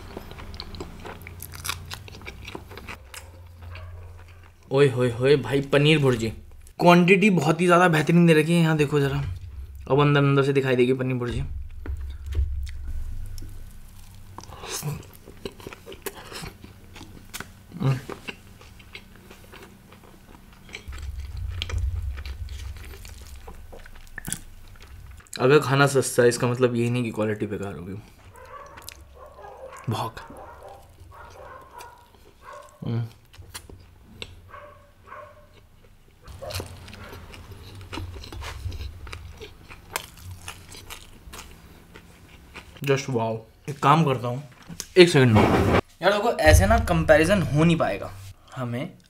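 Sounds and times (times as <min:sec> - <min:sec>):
chewing with wet mouth smacks: 0:00.0 - 0:04.7, 0:12.1 - 0:25.4, 0:28.1 - 0:34.4, 0:35.5 - 0:42.9.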